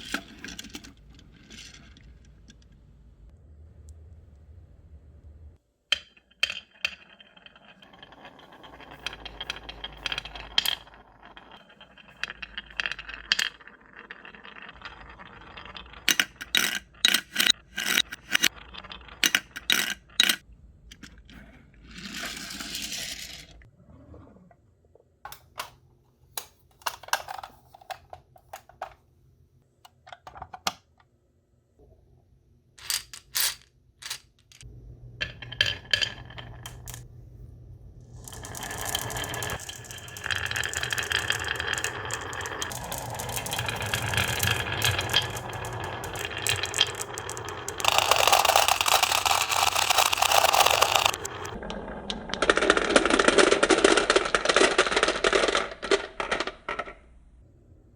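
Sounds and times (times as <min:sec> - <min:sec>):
marbles rolling on tracks: 0:00.0 - 0:02.8, 0:05.9 - 0:23.7, 0:32.8 - 0:37.1, 0:38.1 - 0:57.1
marbles clicking: 0:06.0 - 0:21.2, 0:38.2 - 0:57.0.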